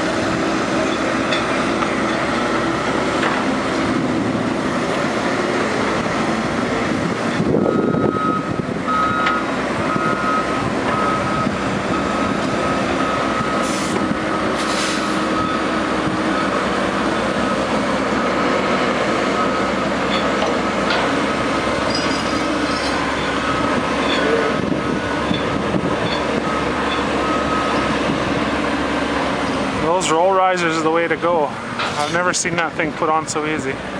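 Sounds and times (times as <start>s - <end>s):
diesel truck engine running: 0.0s - 33.9s
backup alarm beeping: 7.6s - 13.7s, 22.3s - 28.0s.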